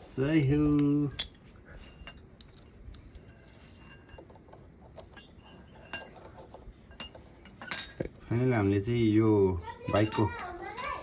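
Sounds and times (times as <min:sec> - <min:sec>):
metal tools clinking: 0:00.3 - 0:04.4, 0:06.9 - 0:08.4, 0:09.8 - 0:11.0.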